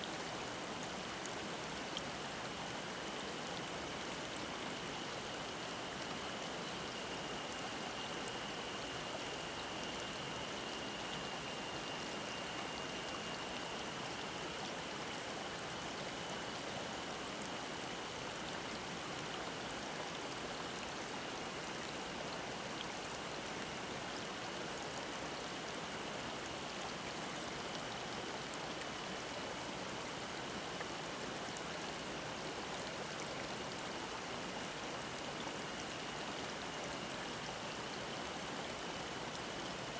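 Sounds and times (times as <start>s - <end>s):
cicadas droning: 3.1s - 17.7s.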